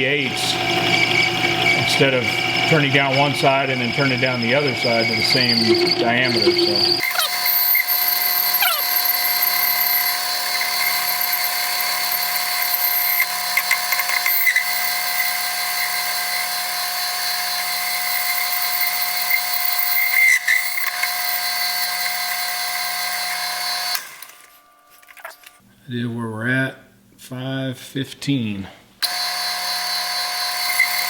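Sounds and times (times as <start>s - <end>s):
metal lathe whine and hiss: 0.0s - 7.0s
cutting tool scraping metal: 0.3s - 25.6s, 29.1s - 31.0s.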